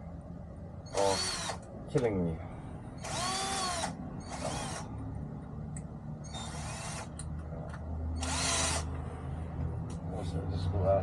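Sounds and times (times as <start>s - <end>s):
power drill whine into wood: 0.9s - 1.6s, 3.0s - 4.9s, 6.2s - 7.2s, 8.2s - 8.9s.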